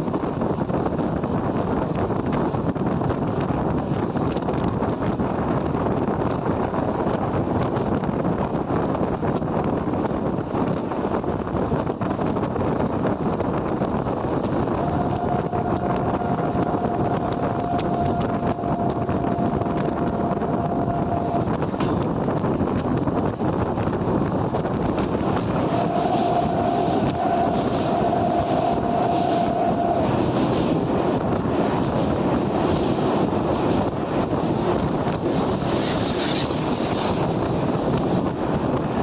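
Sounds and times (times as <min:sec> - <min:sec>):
wind on microphone: 0:00.0 - 0:39.0
train passing: 0:14.3 - 0:22.2, 0:24.1 - 0:39.0
steady high tone: 0:14.7 - 0:21.6, 0:25.6 - 0:30.4.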